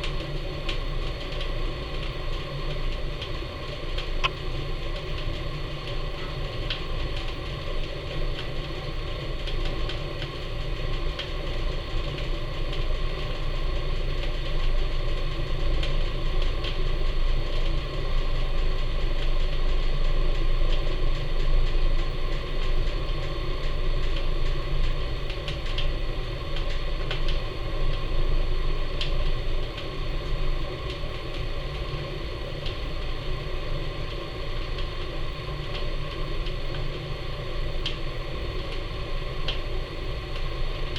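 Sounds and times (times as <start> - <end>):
wood fire draft rumble: 0.0 - 40.9
fire crackles and pops: 21.6 - 28.0.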